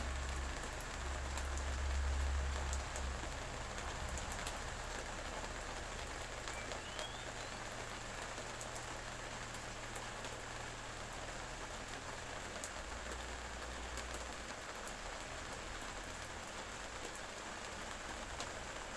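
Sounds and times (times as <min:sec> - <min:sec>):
raindrops ticking: 0:00.0 - 0:18.9
steady rain hiss: 0:00.0 - 0:18.9
faint rising whistle: 0:06.5 - 0:07.6.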